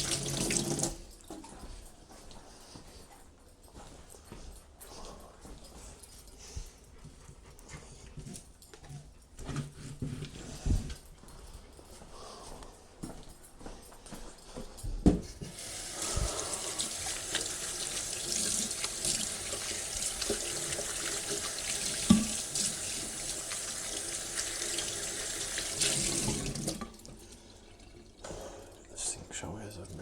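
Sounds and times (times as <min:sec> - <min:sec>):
tap water running into sink: 0:00.0 - 0:01.0, 0:15.5 - 0:28.6.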